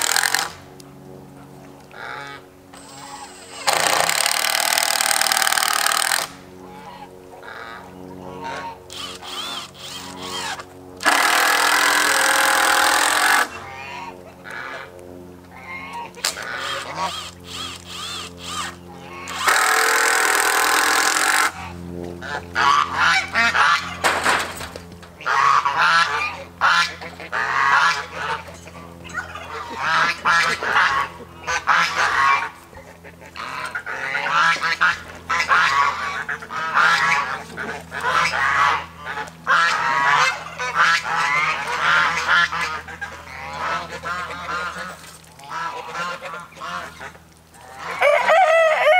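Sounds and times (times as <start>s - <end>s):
geese honking: 1.4s - 48.9s
loud burst of noise: 11.0s - 13.5s, 19.3s - 21.6s.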